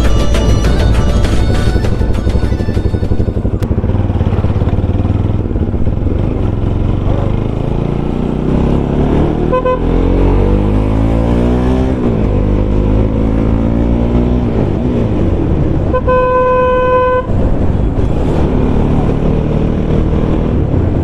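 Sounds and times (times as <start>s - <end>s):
motorcycle engine accelerating: 0.0s - 21.0s
vehicle horn beeping: 9.4s - 10.1s, 15.8s - 17.5s.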